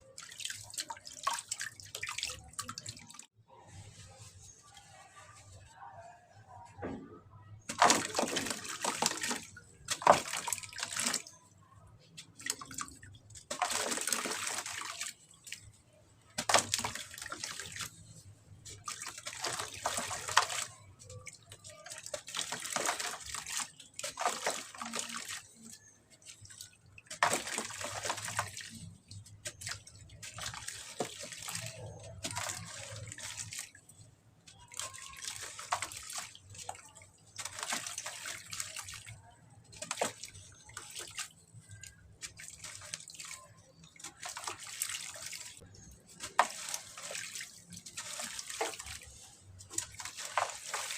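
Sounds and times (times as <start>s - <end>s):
cement crumbling into water: 7.7s - 11.3s, 16.3s - 18.1s, 45.8s - 49.0s.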